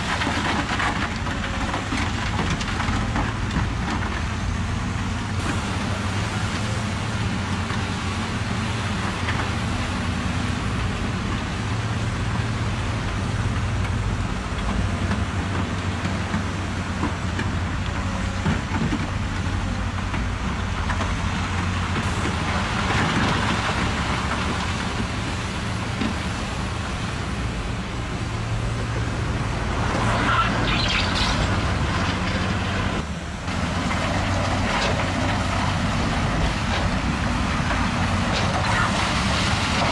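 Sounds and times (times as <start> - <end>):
truck engine humming: 0.0 - 39.9
rough noise: 22.0 - 39.9.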